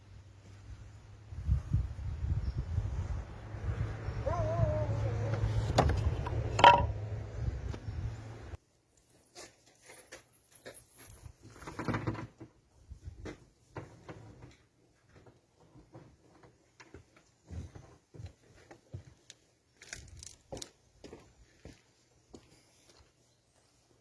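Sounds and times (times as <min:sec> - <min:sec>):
objects knocking and clicking: 0:05.7 - 0:07.0.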